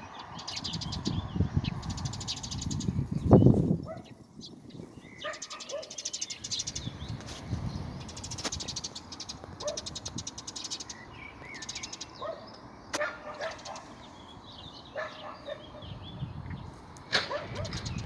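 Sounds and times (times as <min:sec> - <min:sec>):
birds singing trills: 0:00.0 - 0:18.0
sharp loud bird calls: 0:00.0 - 0:18.0.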